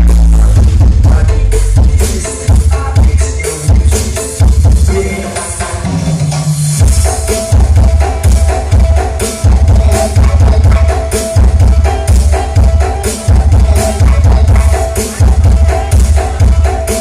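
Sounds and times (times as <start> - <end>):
held low bass note: 0.0 - 2.0
percussion: 0.0 - 17.0
pounding bass-drum beat: 0.0 - 17.0.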